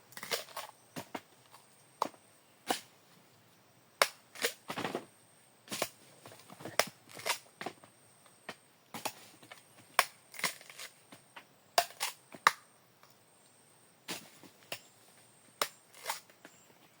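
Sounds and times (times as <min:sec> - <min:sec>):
cacao pods cracking open: 0:00.1 - 0:00.7, 0:06.7 - 0:07.4, 0:10.0 - 0:11.0.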